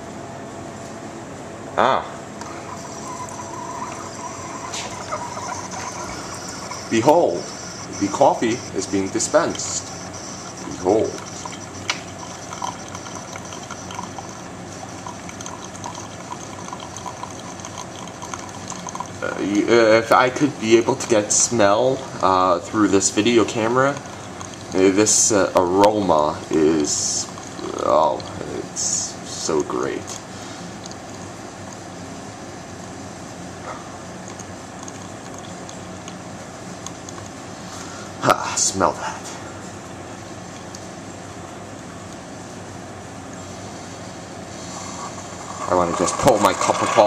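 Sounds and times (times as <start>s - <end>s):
faint pump hum: 0.0s - 47.0s
faint bubbling ticks: 2.4s - 21.8s, 22.7s - 31.9s, 34.2s - 37.5s
coffee trickling into mug: 2.4s - 31.9s, 34.1s - 37.7s, 44.4s - 47.0s.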